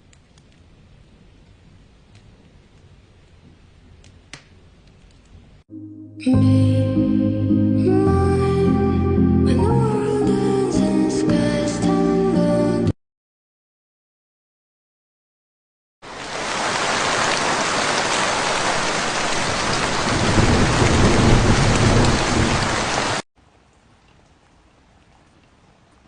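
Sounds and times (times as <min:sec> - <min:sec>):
heavy rain pouring: 0:16.0 - 0:23.2
thunder rumbling: 0:18.6 - 0:23.2.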